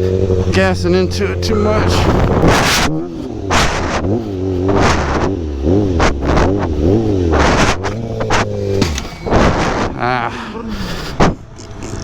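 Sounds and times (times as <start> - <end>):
motorcycle engine revving: 0.0 - 12.0
wind on microphone: 1.9 - 10.2.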